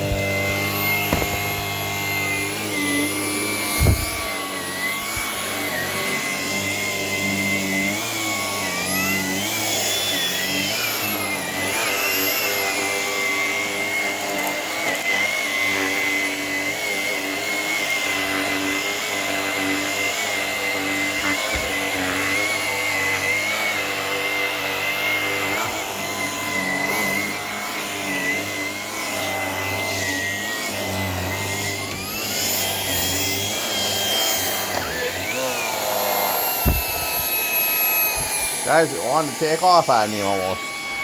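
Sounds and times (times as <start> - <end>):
vacuum cleaner motor whining: 0.0 - 41.0
thump: 1.0 - 1.8, 3.8 - 4.3, 36.6 - 37.3.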